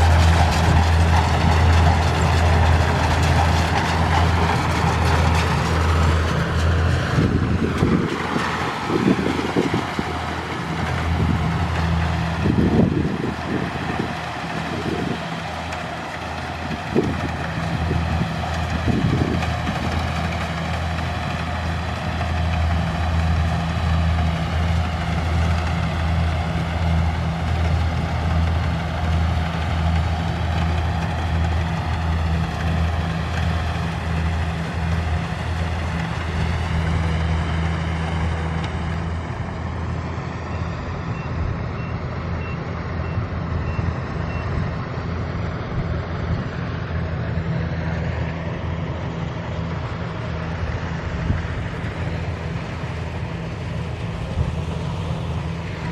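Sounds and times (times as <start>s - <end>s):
diesel engine running: 0.0s - 55.9s
faint beep: 40.5s - 44.5s.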